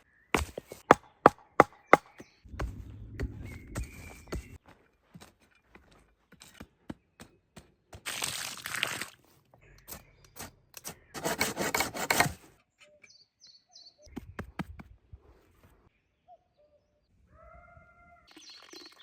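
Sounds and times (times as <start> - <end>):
bird chirping: 12.7 - 14.3.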